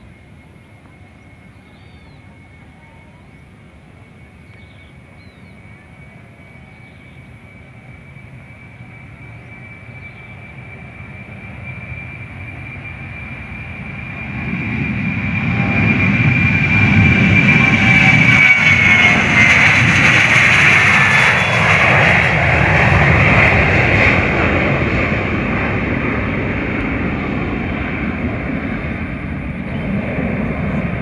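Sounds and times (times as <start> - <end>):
steady high whine: 0.0 - 31.0.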